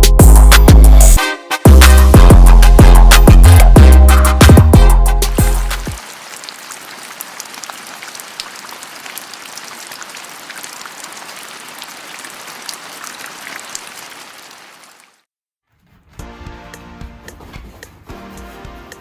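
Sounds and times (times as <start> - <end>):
rain pattering: 5.9 - 15.3.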